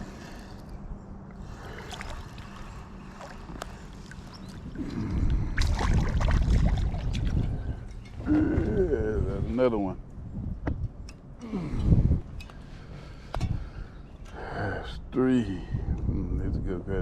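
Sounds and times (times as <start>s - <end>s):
boat motor humming: 0.0s - 9.3s.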